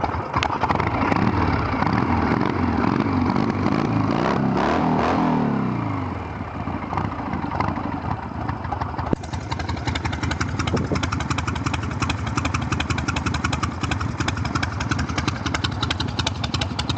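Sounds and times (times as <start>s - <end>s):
motorcycle engine loping idle: 0.0s - 4.6s, 5.4s - 16.9s.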